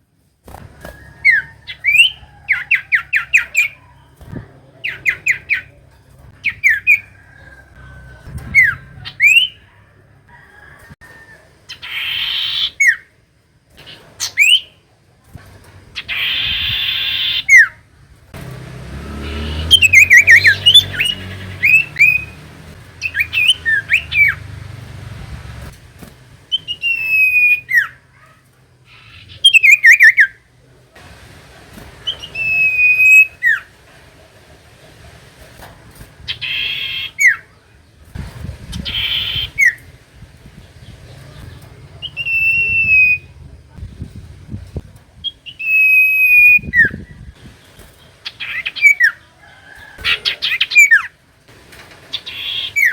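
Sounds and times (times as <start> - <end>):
harsh rasping bird calls: 0.8 - 14.9, 15.9 - 30.6, 31.9 - 33.8, 35.8 - 43.5, 45.2 - 51.2, 52.1 - 52.9
bird whistled notes: 26.5 - 28.0, 32.1 - 33.6.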